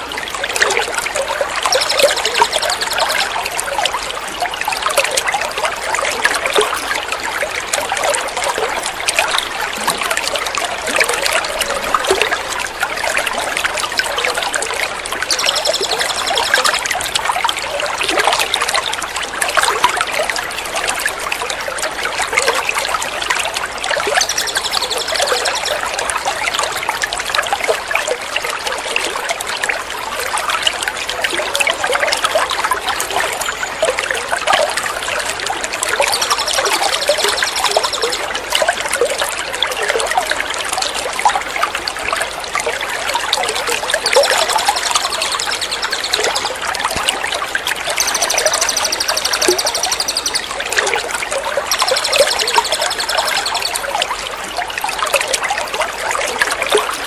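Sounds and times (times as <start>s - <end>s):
trickling water: 0.0s - 57.0s
chattering songbird call: 1.6s - 3.3s, 15.2s - 17.1s, 24.1s - 25.9s, 35.9s - 38.3s, 44.0s - 47.1s, 48.0s - 50.7s, 51.7s - 53.9s.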